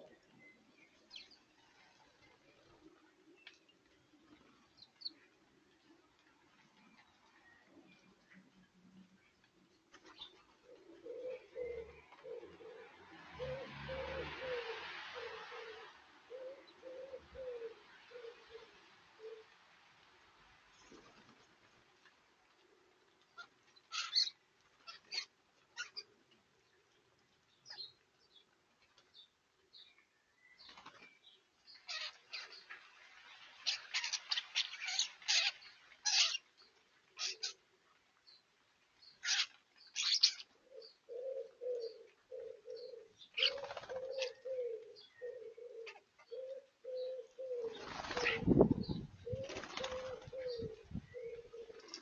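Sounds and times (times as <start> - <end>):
pigeon cooing: 10.6 - 19.5, 39.2 - 52.0
scratchy bird calls: 23.4 - 26.1, 31.8 - 32.8, 33.6 - 36.5, 37.2 - 37.6, 39.2 - 40.5, 43.4 - 44.4.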